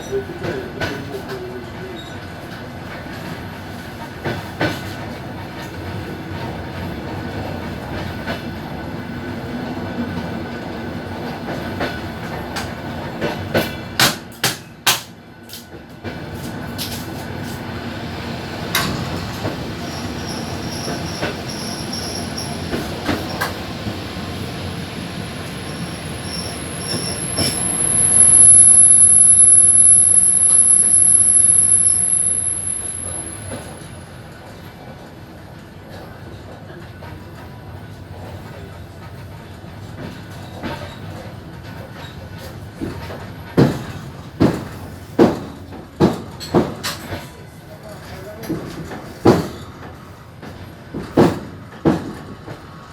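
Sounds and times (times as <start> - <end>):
train wheels rolling on rails: 0.0 - 52.9
high wheel squeal: 19.8 - 34.3.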